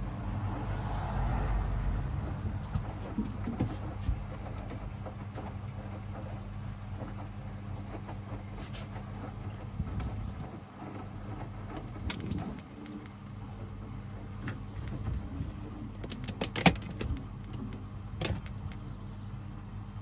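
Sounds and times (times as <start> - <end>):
washing machine motor hum: 0.0 - 20.0
clinks and knocks from tumbling load: 9.5 - 13.2, 14.4 - 19.0.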